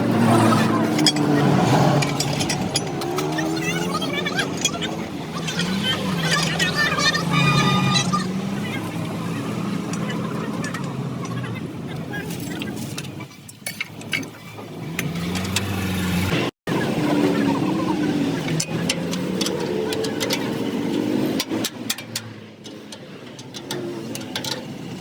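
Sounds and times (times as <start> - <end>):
vehicle engine revving: 0.0 - 12.8, 14.4 - 22.4
knocks and clicks: 0.8 - 6.8.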